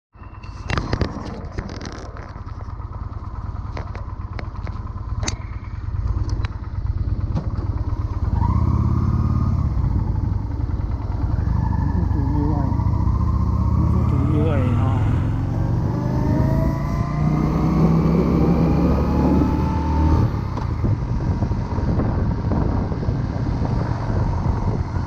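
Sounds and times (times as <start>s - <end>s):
motorcycle engine rumbling: 0.2s - 25.0s
sharp clicks and knocks: 3.7s - 6.6s.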